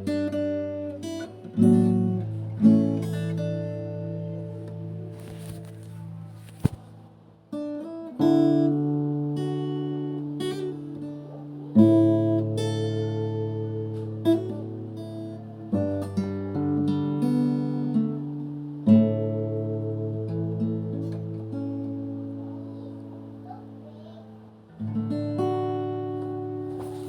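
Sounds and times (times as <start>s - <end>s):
acoustic guitar strumming: 0.0s - 24.0s, 24.6s - 27.0s.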